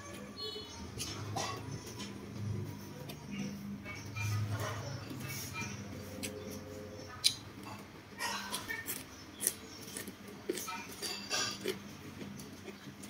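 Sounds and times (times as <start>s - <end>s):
chewing crunchy raw beans: 6.1s - 13.0s.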